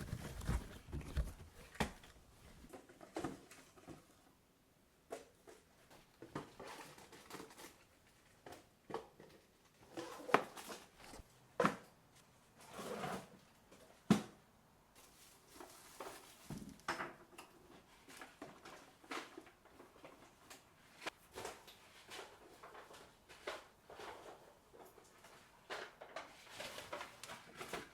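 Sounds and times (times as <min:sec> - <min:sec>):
drawer or cupboard being worked: 0:00.0 - 0:03.5
household items knocking and clicking: 0:00.0 - 0:04.0.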